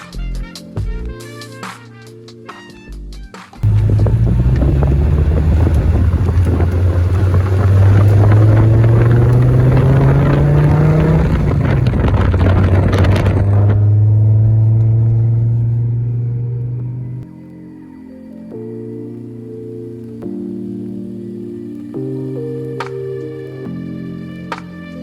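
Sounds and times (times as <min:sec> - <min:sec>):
car engine drone: 0:03.6 - 0:17.3
wind and road noise: 0:03.6 - 0:17.3.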